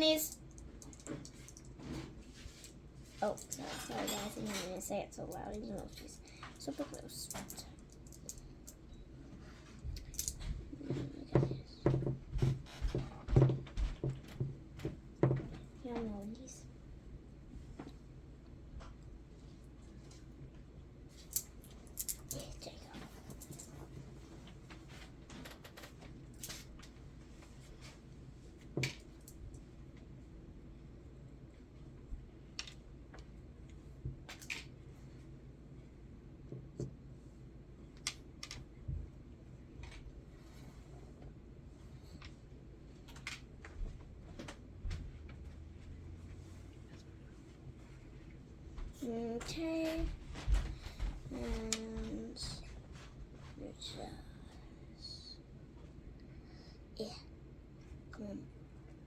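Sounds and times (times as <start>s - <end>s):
low room hum: 0.0s - 59.0s
small objects clicking and rustling: 0.2s - 1.8s, 10.0s - 10.4s, 21.2s - 22.6s.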